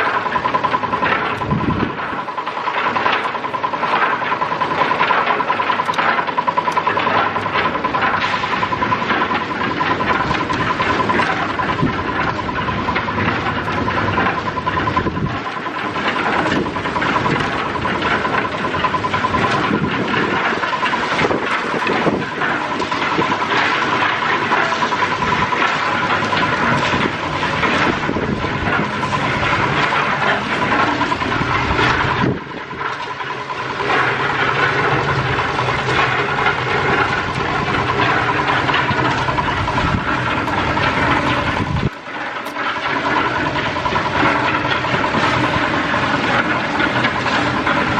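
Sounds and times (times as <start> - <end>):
construction machinery running: 0.0 - 47.9
low engine hum: 34.9 - 42.0
steady high tone: 36.5 - 42.6.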